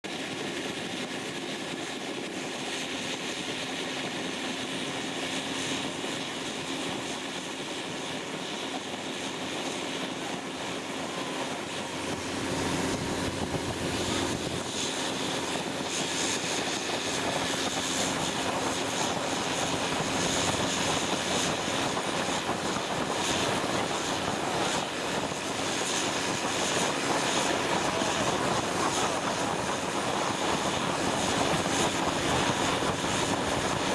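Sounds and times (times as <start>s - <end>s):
boat engine droning: 9.7s - 33.9s.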